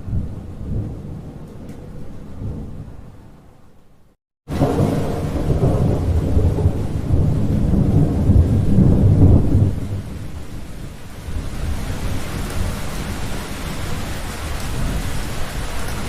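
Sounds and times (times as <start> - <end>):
thunder rumbling: 0.0 - 3.4, 4.5 - 16.0
heavy rain hissing: 8.5 - 16.0.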